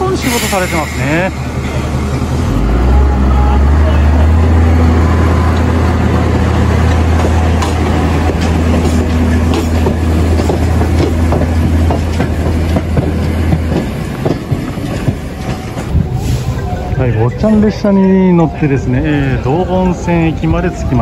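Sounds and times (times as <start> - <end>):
locomotive engine drone: 0.0 - 21.0
coaches clattering over rail joints: 5.5 - 18.6.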